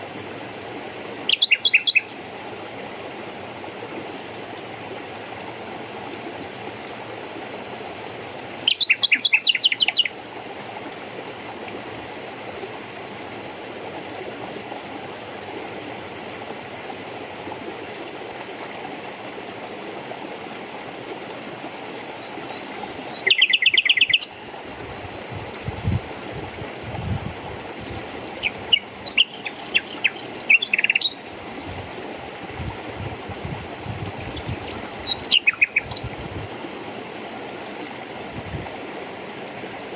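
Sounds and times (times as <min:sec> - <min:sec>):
songbird singing: 0:00.0 - 0:02.2, 0:06.4 - 0:10.2, 0:21.6 - 0:24.5, 0:27.8 - 0:31.8, 0:33.6 - 0:36.2
flowing water rushing: 0:00.0 - 0:39.9.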